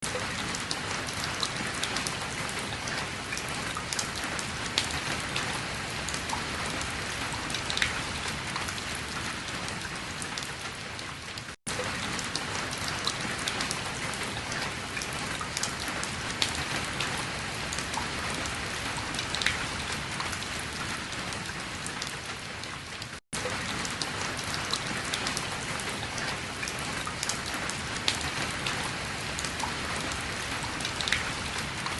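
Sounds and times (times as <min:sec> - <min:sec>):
raindrops ticking on surfaces: 0:00.0 - 0:31.9
steady rain falling: 0:00.0 - 0:31.9.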